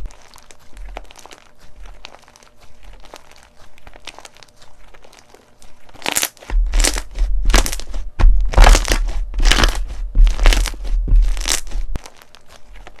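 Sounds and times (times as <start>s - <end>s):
crunchy slime crackling: 0.0s - 13.0s
low handling rumble: 6.5s - 12.0s.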